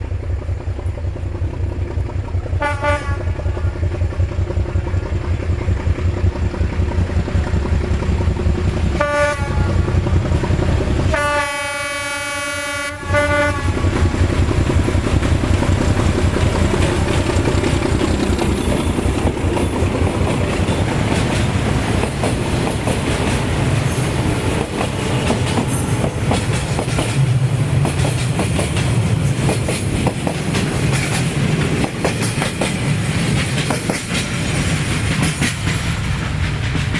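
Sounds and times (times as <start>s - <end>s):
locomotive engine rumbling: 0.0s - 36.9s
train horn blasts: 2.6s - 3.8s, 9.0s - 10.0s, 11.1s - 13.9s
wagons clattering over rail joints: 15.3s - 36.9s.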